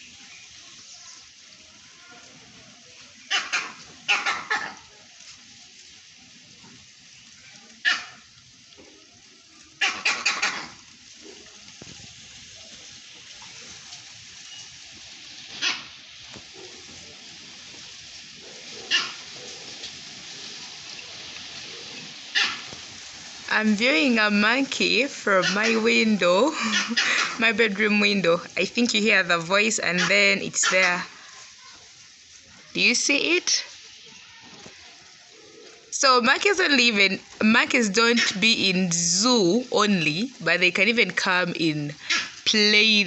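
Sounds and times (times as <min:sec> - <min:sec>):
dog barking: 0:03.3 - 0:04.9, 0:07.8 - 0:08.3, 0:15.6 - 0:16.8, 0:18.4 - 0:19.9, 0:21.9 - 0:22.7, 0:25.4 - 0:25.8, 0:26.7 - 0:27.4, 0:30.0 - 0:31.0.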